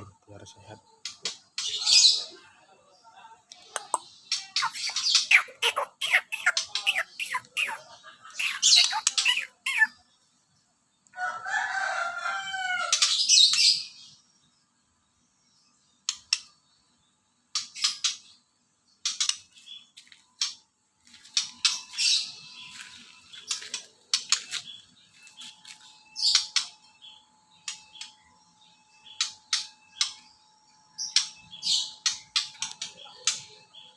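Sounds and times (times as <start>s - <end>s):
songbird singing high phrases: 3.6s - 10.0s.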